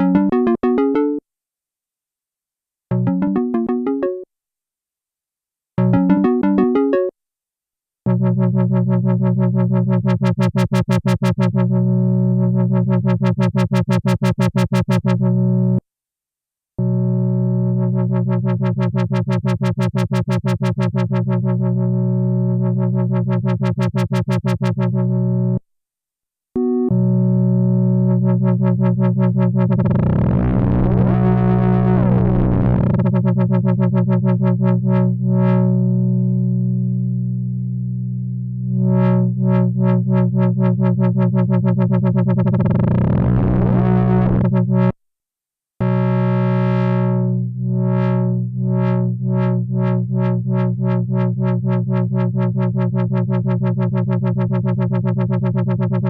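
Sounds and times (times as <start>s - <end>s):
synthesizer low chord: 2.9s - 4.2s, 5.8s - 7.1s, 8.1s - 10.4s, 16.8s - 19.2s, 26.6s - 44.9s, 45.8s - 56.0s
pulsed repeating synth note: 26.6s - 36.0s, 38.7s - 44.9s.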